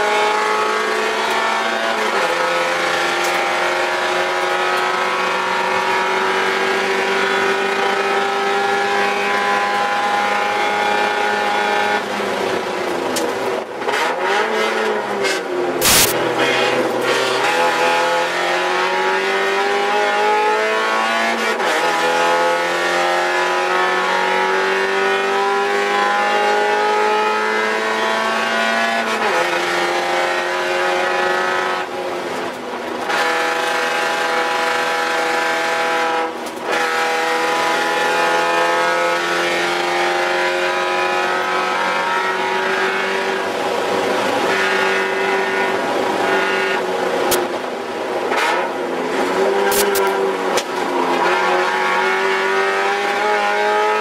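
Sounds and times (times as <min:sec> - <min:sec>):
race car engine at high revs: 0:00.0 - 0:54.0.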